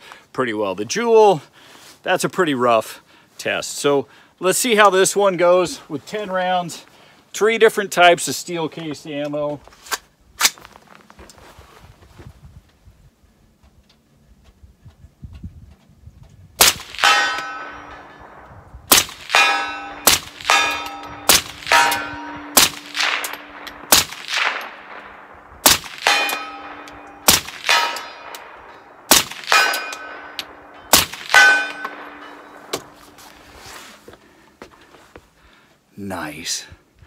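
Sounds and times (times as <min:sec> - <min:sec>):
rifle shots: 0:16.6 - 0:33.1
bullet clanging on steel target: 0:16.9 - 0:18.4, 0:19.2 - 0:25.0, 0:25.9 - 0:33.2.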